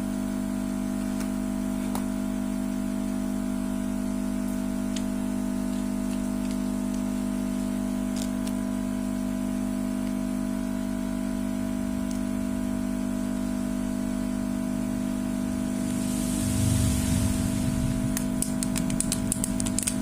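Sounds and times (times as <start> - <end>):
steady hum: 10.4 - 20.0.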